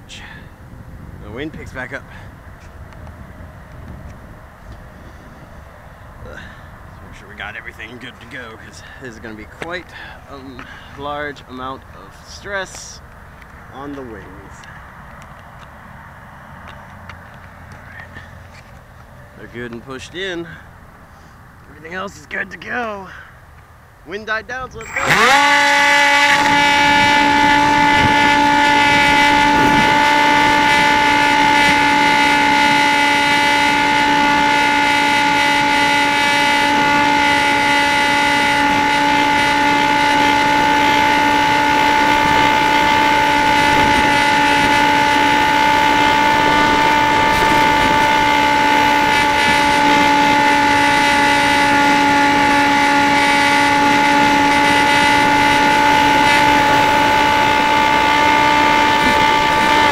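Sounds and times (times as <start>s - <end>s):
rough rushing noise: 24.7s - 59.9s
electric motor and propeller whine: 24.8s - 59.9s.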